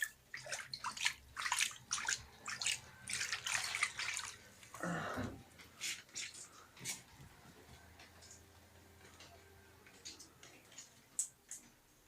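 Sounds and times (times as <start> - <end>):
water splashing and dripping: 0.0 - 4.8.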